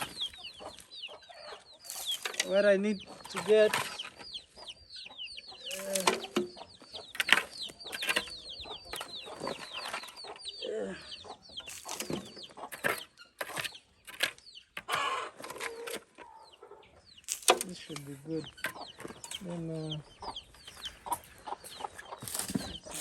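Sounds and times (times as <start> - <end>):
chicks peeping: 0.0 - 23.0
hen clucking: 0.0 - 23.0
spade scraping and knocking: 1.8 - 4.2, 5.6 - 10.4, 11.6 - 16.4, 17.2 - 19.9, 21.0 - 23.0.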